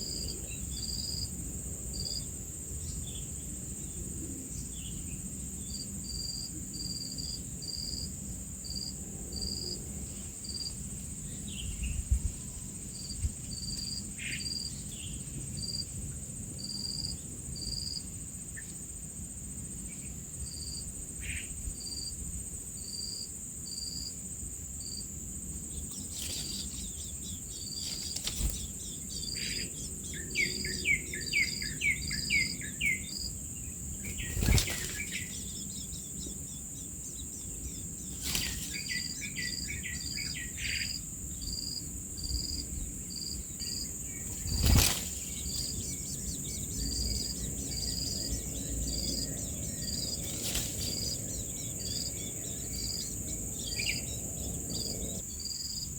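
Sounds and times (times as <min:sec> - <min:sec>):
insects droning: 0:00.0 - 0:55.9
rapid falling bird calls: 0:25.7 - 0:33.3, 0:33.9 - 0:36.5, 0:37.5 - 0:41.0, 0:43.1 - 0:55.2.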